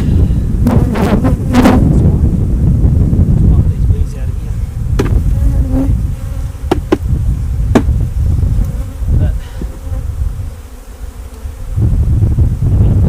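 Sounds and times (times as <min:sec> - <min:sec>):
bees buzzing: 0:00.0 - 0:02.0, 0:04.9 - 0:12.0
wooden hive boxes knocking: 0:05.0 - 0:05.3, 0:06.7 - 0:07.1, 0:07.7 - 0:08.0.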